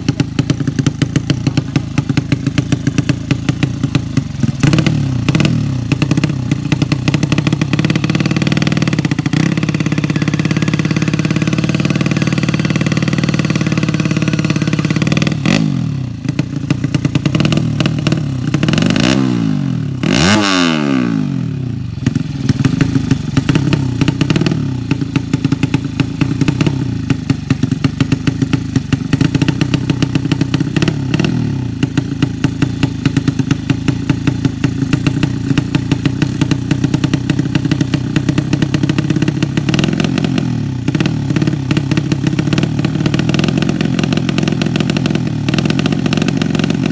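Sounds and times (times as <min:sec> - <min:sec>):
exhaust crackling pops: 0:00.0 - 0:18.7
motorcycle engine revving and idling: 0:00.0 - 0:46.9.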